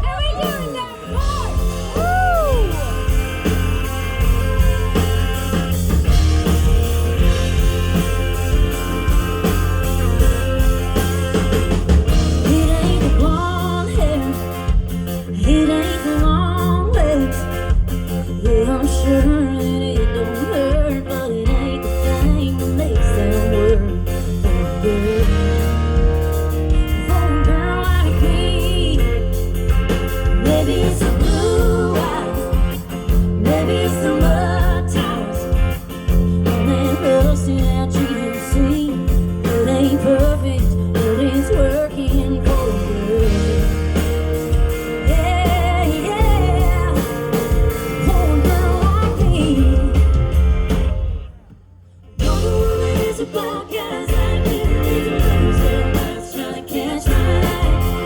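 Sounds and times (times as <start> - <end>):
band playing guitar bass and drums: 0.0 - 58.0
woman singing: 12.4 - 25.7, 26.8 - 29.5, 30.2 - 44.0, 44.9 - 50.3, 52.2 - 58.0.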